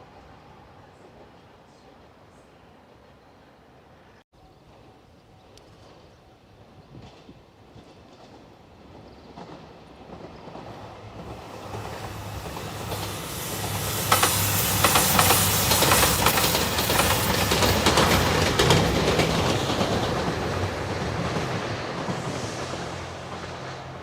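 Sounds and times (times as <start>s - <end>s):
train passing: 5.8s - 24.0s
train wheels clattering over rail joints: 7.0s - 22.4s.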